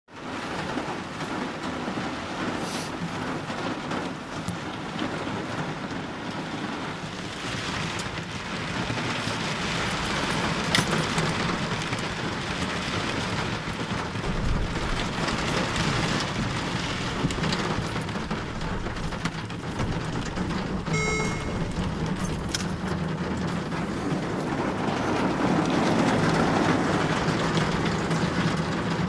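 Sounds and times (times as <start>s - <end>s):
heavy rain: 0.1s - 29.0s
low rumble: 19.7s - 26.6s.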